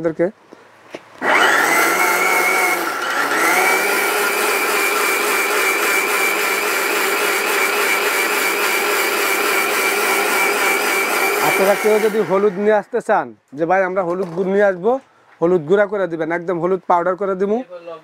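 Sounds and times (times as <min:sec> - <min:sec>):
mixer grinder motor whine: 0:01.2 - 0:12.8.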